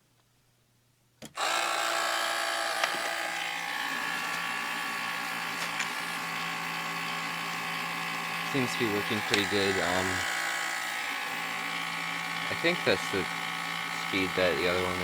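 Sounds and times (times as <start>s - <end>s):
small electric motor running: 1.4s - 15.0s
motor switch click: 8.8s - 9.8s.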